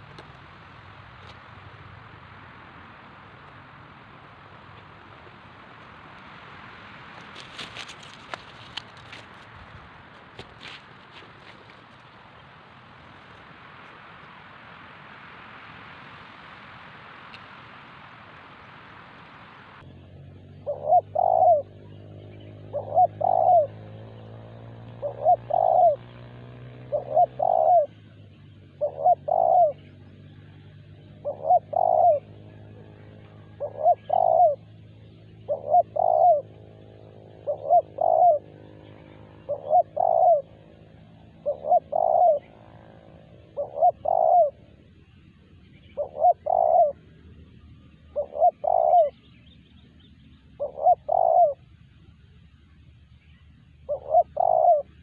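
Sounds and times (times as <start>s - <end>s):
dove cooing: 20.4s - 47.2s, 48.0s - 49.3s, 50.5s - 51.7s, 53.8s - 55.0s.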